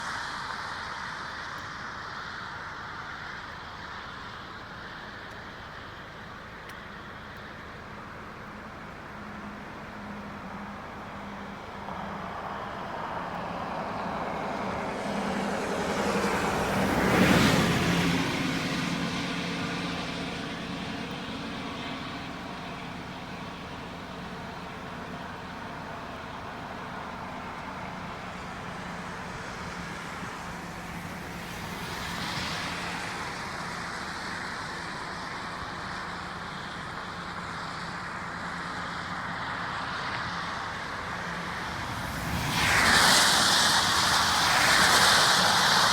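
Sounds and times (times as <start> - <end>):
rushing water: 7.3 - 37.9, 41.3 - 45.9
road vehicle passing by: 11.2 - 36.7, 39.0 - 45.9.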